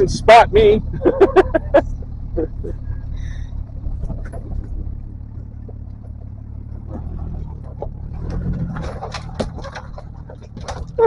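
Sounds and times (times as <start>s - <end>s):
engine running at low speed: 0.0s - 11.0s
knocks and crackles: 1.8s - 11.0s.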